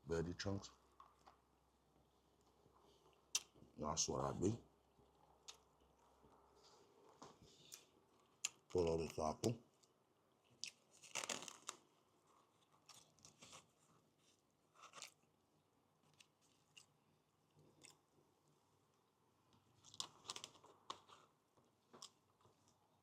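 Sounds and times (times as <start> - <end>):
person chewing crunchy food: 9.8 - 15.3, 16.0 - 18.2.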